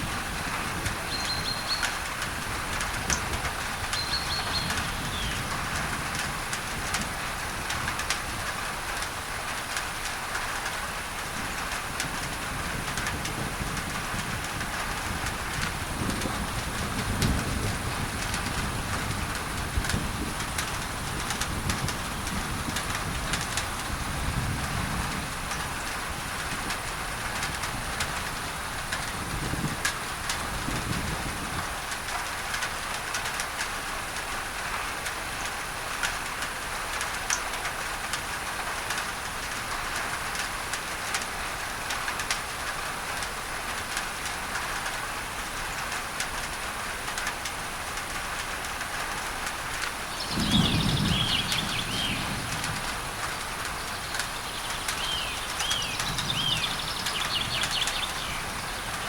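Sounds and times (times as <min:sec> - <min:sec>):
rain on a tin roof: 0:00.0 - 0:59.0
bird chirping: 0:01.1 - 0:01.9, 0:03.9 - 0:05.4, 0:50.0 - 0:52.7, 0:53.6 - 0:59.0
distant thunder rumbling: 0:49.3 - 0:59.0.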